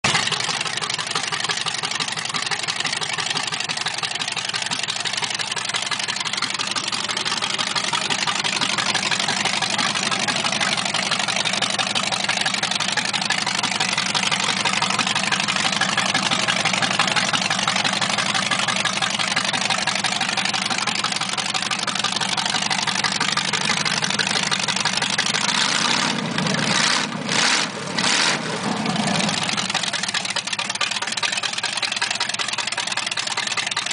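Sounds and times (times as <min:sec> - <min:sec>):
unmuffled engine idling: 0:00.0 - 0:33.9.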